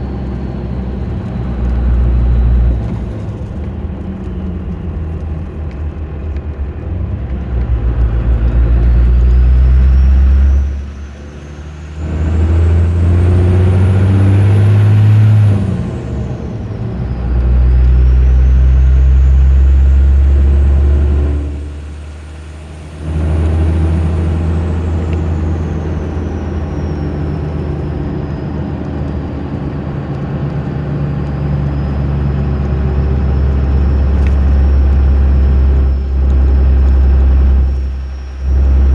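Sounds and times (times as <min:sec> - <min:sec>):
diesel engine accelerating: 0:00.0 - 0:38.9
turbo whistle: 0:31.6 - 0:38.9.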